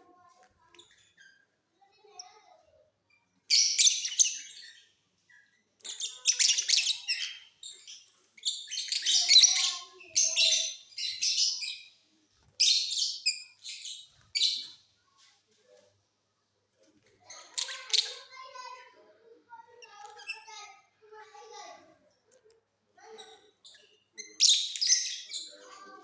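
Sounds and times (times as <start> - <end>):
lovebirds chirping: 5.8 - 12.0.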